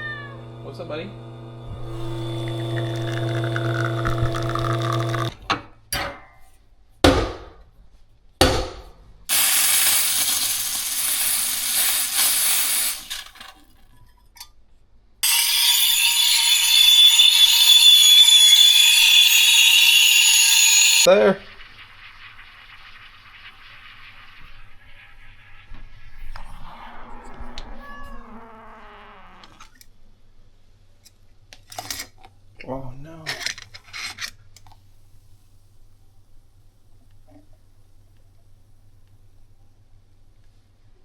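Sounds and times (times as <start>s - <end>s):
appliance motor whining: 0.4s - 5.4s, 15.2s - 21.1s
coffee machine hissing: 0.4s - 5.4s, 9.3s - 13.5s, 15.2s - 27.6s.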